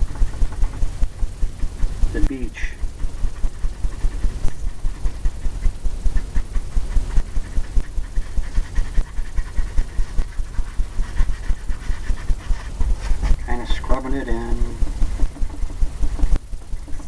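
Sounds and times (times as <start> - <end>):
brush thumping on canvas: 0.0 - 17.0.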